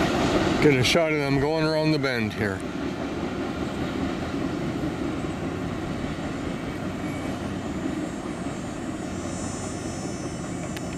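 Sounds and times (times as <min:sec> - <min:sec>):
train cars rumbling on rails: 0:00.0 - 0:10.9
faint high whine: 0:06.3 - 0:10.9.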